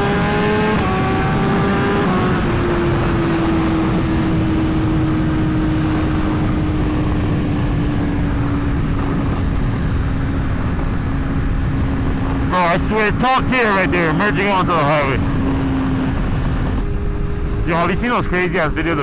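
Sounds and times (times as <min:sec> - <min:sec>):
motorcycle engine at high revs: 0:00.0 - 0:12.5.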